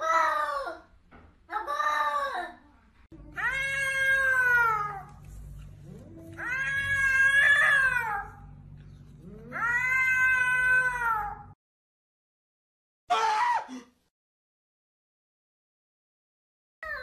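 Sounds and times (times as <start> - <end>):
cat meowing: 9.2 - 11.5.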